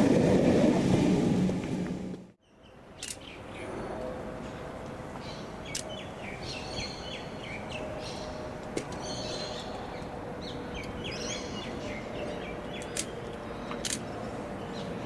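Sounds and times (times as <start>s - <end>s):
outdoor background noise: 0.0s - 15.0s
passing train: 0.0s - 15.0s
birds chirping: 4.5s - 15.0s.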